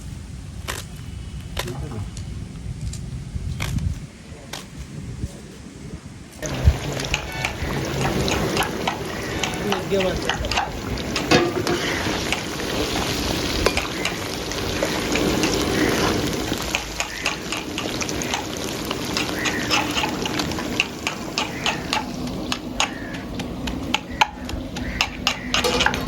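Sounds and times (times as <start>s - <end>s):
food sizzling in hot oil: 6.4s - 26.0s
metal spoon scraping a pot: 10.3s - 12.5s, 25.0s - 26.0s.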